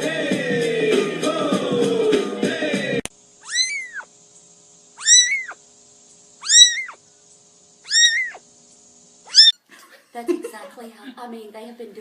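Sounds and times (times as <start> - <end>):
cat meowing: 3.4 - 4.1, 5.0 - 5.6, 6.4 - 7.0, 7.9 - 8.4, 9.3 - 9.6.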